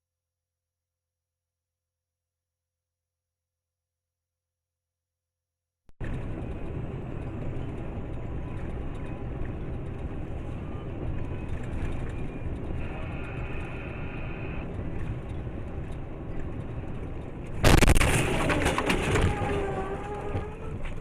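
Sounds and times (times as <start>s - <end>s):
road rumble inside car: 6.0s - 21.0s
vehicle collision crash: 17.6s - 20.4s.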